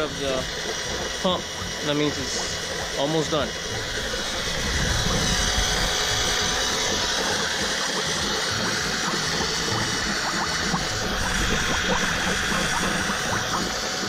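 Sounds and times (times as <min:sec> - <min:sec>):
electric pump running: 0:00.0 - 0:14.0.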